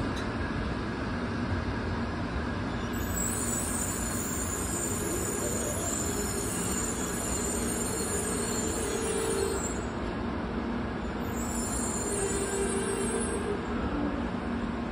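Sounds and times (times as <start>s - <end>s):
train whine: 0.0s - 14.9s
wheel and rail noise: 0.0s - 14.9s.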